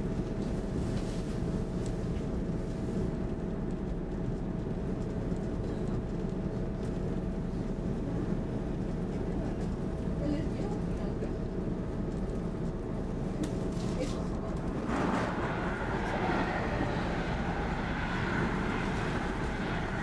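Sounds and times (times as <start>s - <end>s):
train hum and rumble: 0.0s - 20.0s
faint steady whine: 14.7s - 20.0s.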